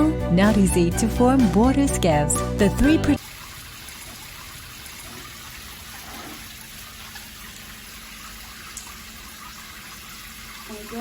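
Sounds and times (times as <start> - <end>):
shower water splashing: 3.2 - 11.0.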